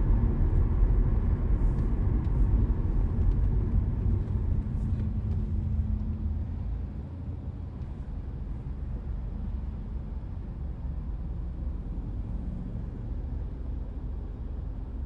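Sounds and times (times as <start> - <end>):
car tyre and engine rumble: 0.0 - 15.0.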